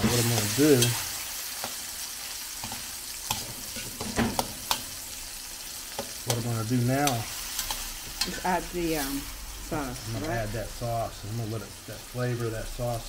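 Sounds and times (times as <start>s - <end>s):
man speaking: 0.0s - 1.0s, 6.2s - 7.3s, 10.1s - 13.0s
prawns sizzling in a wok: 0.0s - 13.0s
metal utensil clicking on pan: 2.6s - 5.0s, 5.9s - 8.5s.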